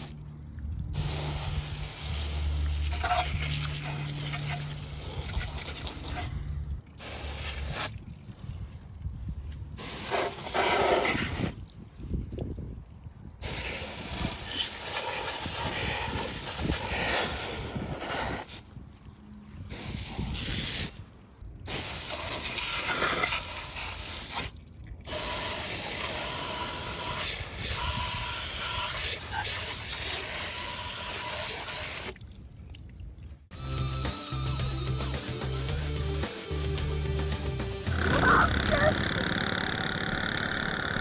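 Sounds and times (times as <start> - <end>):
water spraying from nozzle: 0.9 - 6.3, 7.0 - 8.1, 9.7 - 11.7, 13.4 - 18.8, 19.6 - 32.2.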